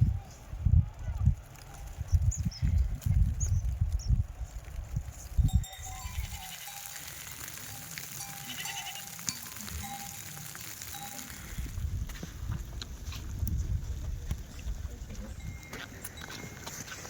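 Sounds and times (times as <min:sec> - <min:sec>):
sheep bleating: 0:06.0 - 0:07.2, 0:08.2 - 0:10.2.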